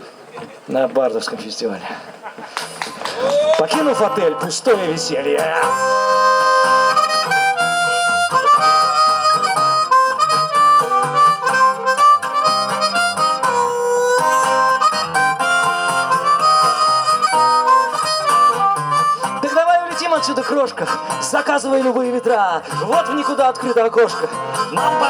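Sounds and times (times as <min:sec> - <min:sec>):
harmonica solo: 0:05.2 - 0:25.0.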